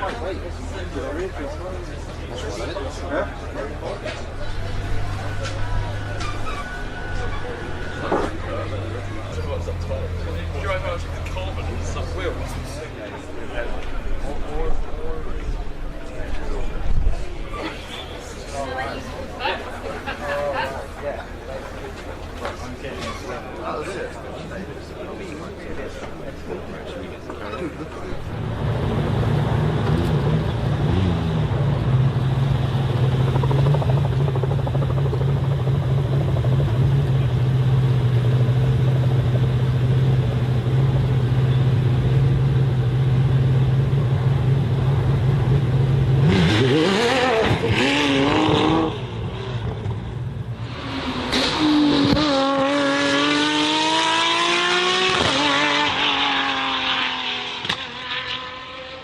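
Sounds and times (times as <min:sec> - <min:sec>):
car engine revving: 0:28.1 - 0:59.0.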